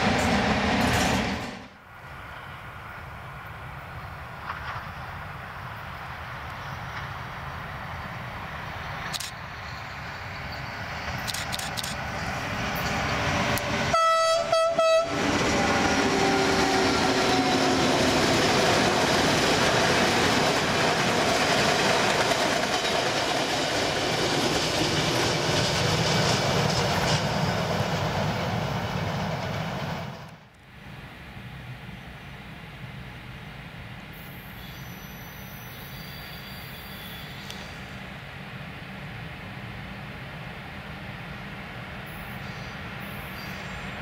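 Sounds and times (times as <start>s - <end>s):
train wheels rumbling on rails: 0.0s - 30.6s
train horn blast: 13.7s - 17.9s.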